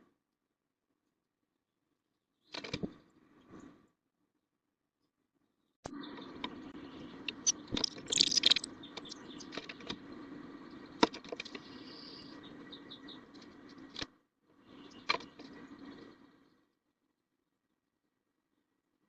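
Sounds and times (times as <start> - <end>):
high bird twitters: 5.9 - 9.6.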